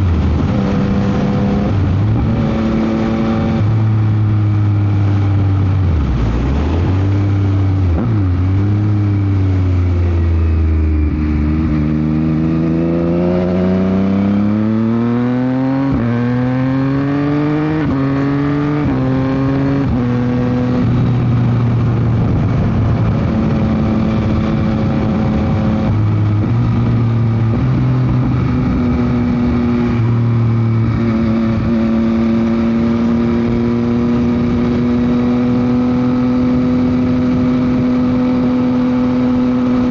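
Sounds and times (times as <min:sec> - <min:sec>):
motorcycle engine accelerating: 0:00.0 - 0:39.9
wind noise on microphone: 0:00.0 - 0:39.9.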